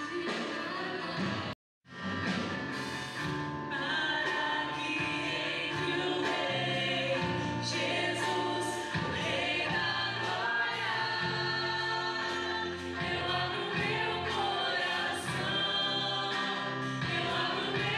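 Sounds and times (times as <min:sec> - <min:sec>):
bass notes: 0:01.9 - 0:17.9
regular drum beat: 0:02.0 - 0:17.9
choir singing worship song: 0:03.6 - 0:17.9.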